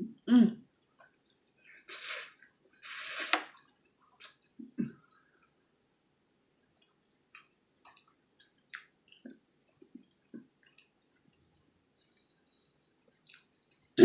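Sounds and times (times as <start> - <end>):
wet chewing mouth clicks: 6.8 - 12.4, 13.2 - 13.8.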